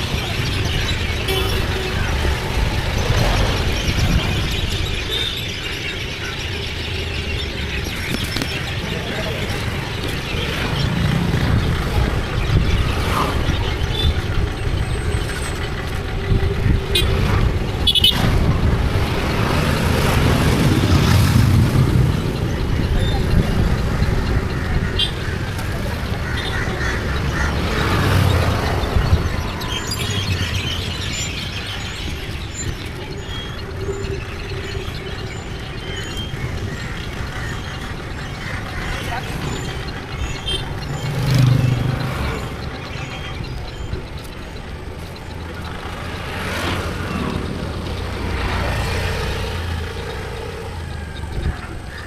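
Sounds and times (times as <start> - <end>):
wind rumble: 0.0 - 5.1, 6.8 - 42.7
road traffic noise: 0.0 - 52.0.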